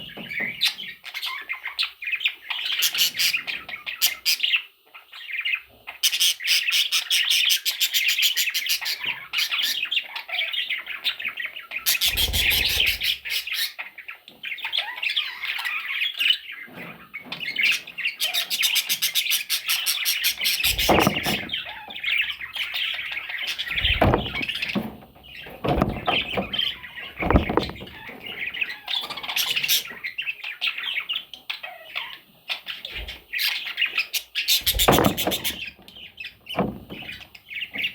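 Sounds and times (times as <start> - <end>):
parrot chicks squawking: 0.0 - 37.9
dull knocks: 20.6 - 21.7, 23.7 - 28.4, 34.6 - 37.3.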